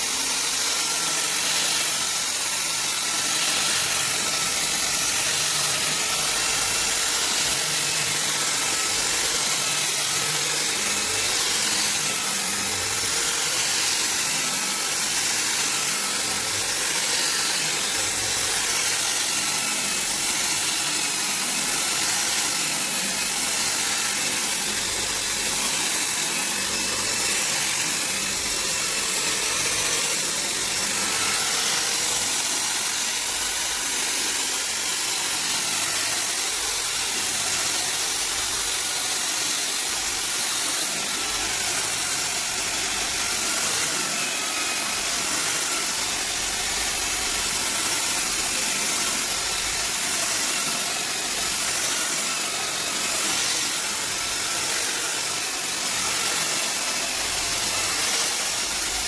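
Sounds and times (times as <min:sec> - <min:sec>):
high-speed motor whining: 0:05.9 - 0:47.4.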